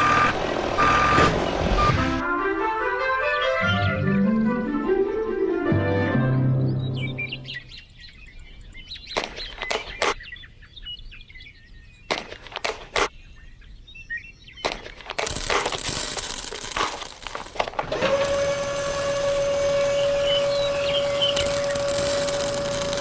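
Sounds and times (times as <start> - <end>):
small birds chirping: 6.6 - 17.5, 18.2 - 23.0
hissing: 14.7 - 23.0.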